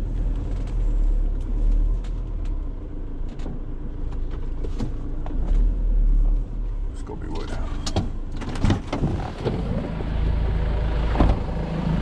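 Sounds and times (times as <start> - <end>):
van engine humming: 0.0 - 12.0.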